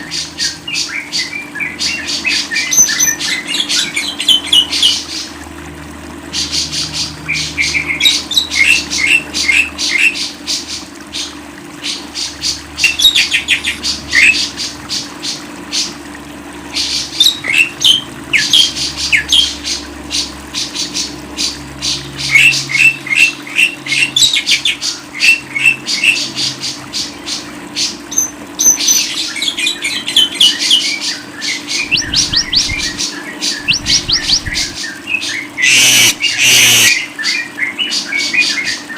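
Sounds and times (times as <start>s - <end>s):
songbird chirping and trilling: 28.2s - 38.9s.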